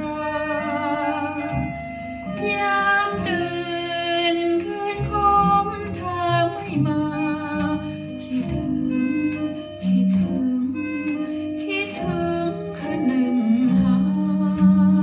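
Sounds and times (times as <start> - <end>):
person singing with music on vinyl: 0.0 - 1.7.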